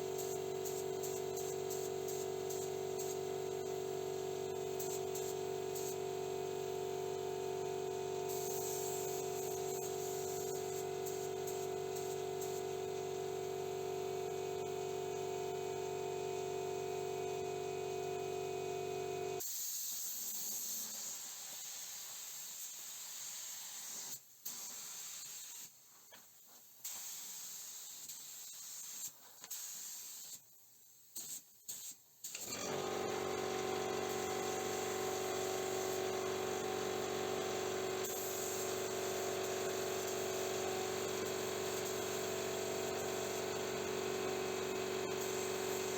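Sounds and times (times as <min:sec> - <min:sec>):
spraying air hiss: 0:08.3 - 0:12.6, 0:19.4 - 0:25.8, 0:26.8 - 0:30.5, 0:38.0 - 0:43.4.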